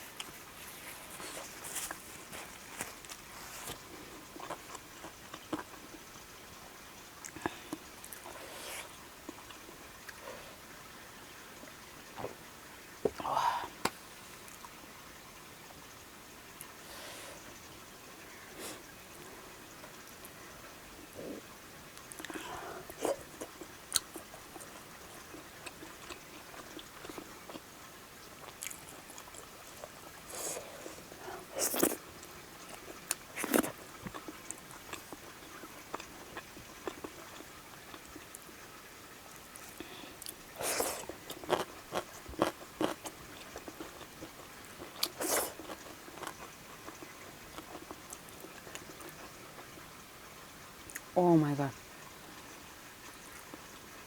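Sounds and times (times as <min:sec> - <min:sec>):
person chewing food: 0:00.0 - 0:06.0, 0:07.2 - 0:10.2, 0:22.0 - 0:27.7, 0:28.4 - 0:38.5, 0:39.5 - 0:49.8.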